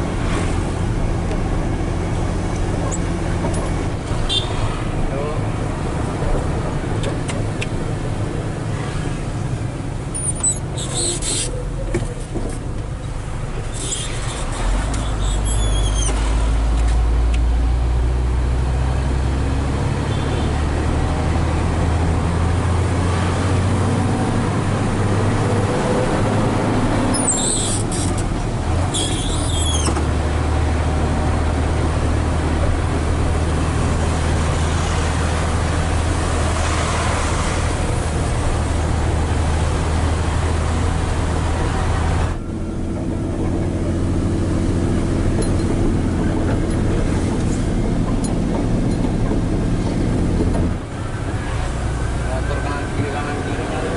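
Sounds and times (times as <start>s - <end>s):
diesel truck engine drone: 0.0s - 53.9s
short high-pitched squeals: 10.1s - 11.6s, 27.1s - 28.2s, 28.9s - 29.9s.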